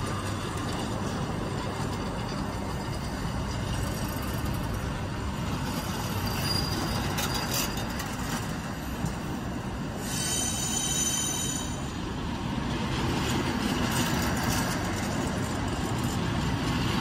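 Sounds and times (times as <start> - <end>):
train wheels rumbling on rail: 0.0 - 17.0
high wheel squeal: 5.6 - 9.0, 9.9 - 12.0.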